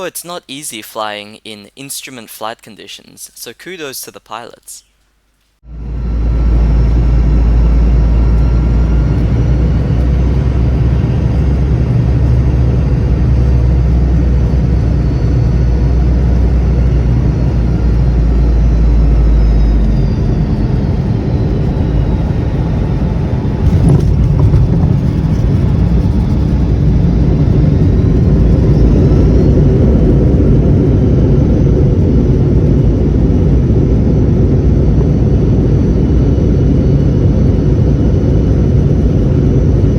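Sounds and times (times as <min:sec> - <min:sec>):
faint whining engine tones: 0:05.6 - 0:39.9
jet engine and airflow rumble: 0:05.6 - 0:39.9
landing roll rumble: 0:06.0 - 0:33.9
wheels touching down thump: 0:23.6 - 0:26.3.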